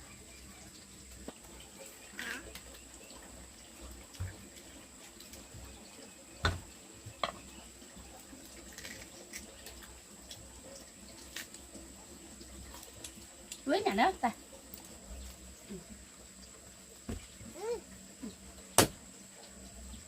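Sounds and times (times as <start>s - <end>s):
low steady hiss: 0.0s - 20.0s.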